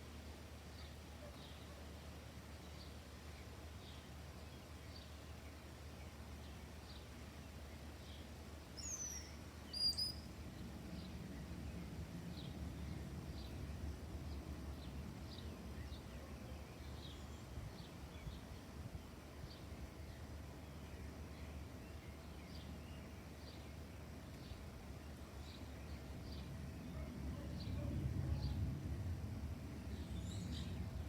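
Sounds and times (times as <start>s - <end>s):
faint high chirp: 8.8s - 10.3s
sharp bird calls: 8.8s - 10.3s
low background rumble: 10.2s - 31.0s.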